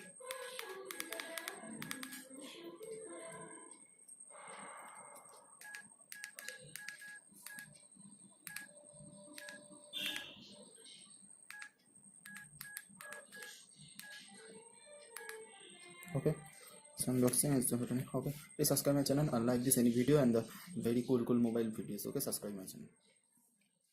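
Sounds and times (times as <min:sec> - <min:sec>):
mobile phone keypad beeps: 0:00.0 - 0:03.5, 0:04.9 - 0:07.8, 0:08.4 - 0:10.6, 0:11.4 - 0:14.3, 0:15.1 - 0:16.2.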